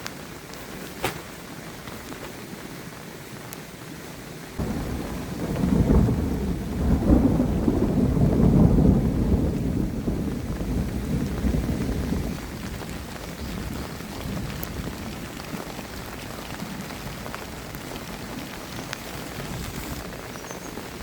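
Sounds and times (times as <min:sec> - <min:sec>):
heavy rain: 0:00.0 - 0:21.0
thunder rumbling: 0:04.6 - 0:21.0.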